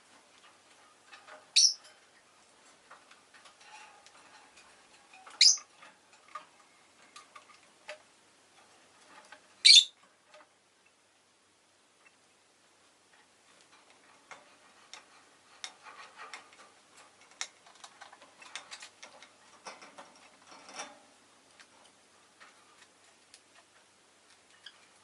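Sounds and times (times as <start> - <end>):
lovebird chirping: 1.5 - 1.8, 5.4 - 5.7, 9.6 - 10.0.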